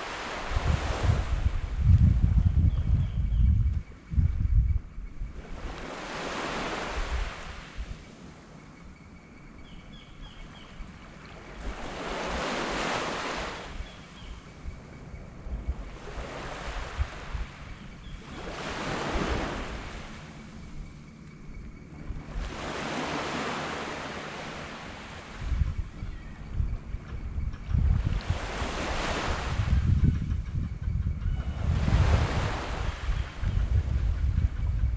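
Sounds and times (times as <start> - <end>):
sea waves breaking on beach: 0.0 - 1.7, 5.4 - 8.3, 11.1 - 14.3, 15.8 - 20.6, 22.2 - 25.5, 28.0 - 29.8, 31.6 - 33.5
wind buffeting microphone: 0.0 - 8.1, 9.5 - 34.9.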